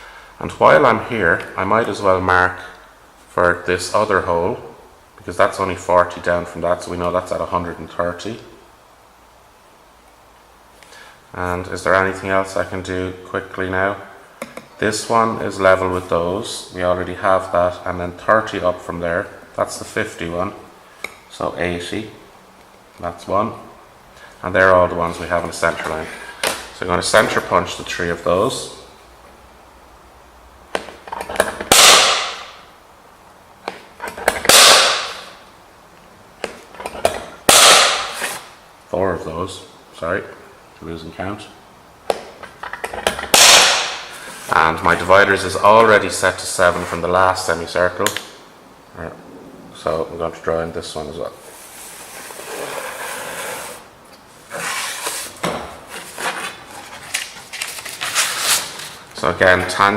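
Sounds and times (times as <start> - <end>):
hammer striking punch on metal: 31.7 - 32.6.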